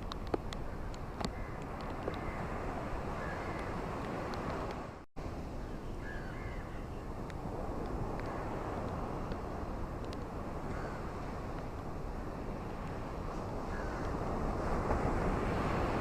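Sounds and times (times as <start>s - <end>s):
faint bird calls: 3.2s - 3.8s, 5.6s - 7.2s
ocean waves washing: 7.0s - 16.0s.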